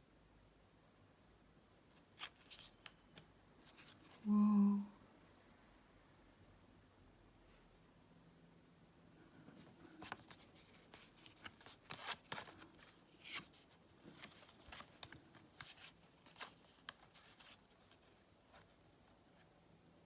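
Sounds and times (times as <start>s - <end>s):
cards sliding and tapping: 9.9s - 18.0s.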